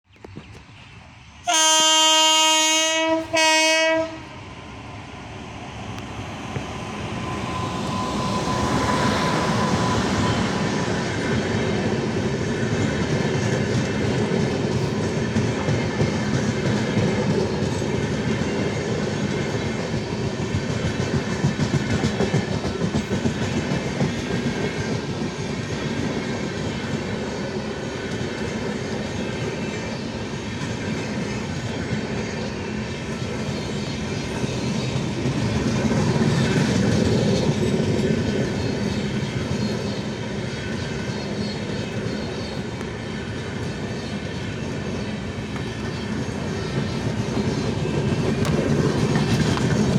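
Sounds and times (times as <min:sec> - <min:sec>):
train wheels rumbling on rails: 0:00.1 - 0:49.9.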